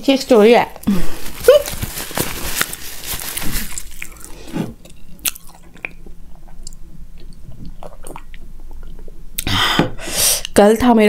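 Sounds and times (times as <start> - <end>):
chewing with wet mouth clicks: 3.8 - 9.5.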